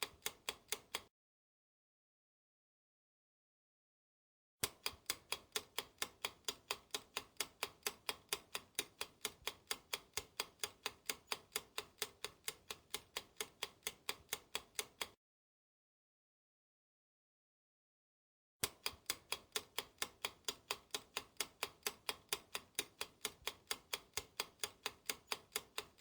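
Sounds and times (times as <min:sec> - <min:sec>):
clock ticking: 0:00.0 - 0:01.1, 0:04.6 - 0:15.2, 0:18.6 - 0:26.0.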